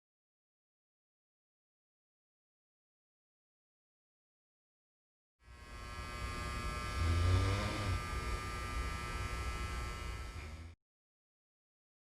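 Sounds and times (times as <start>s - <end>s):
electrical buzz: 5.4s - 10.8s
low hum: 5.5s - 10.8s.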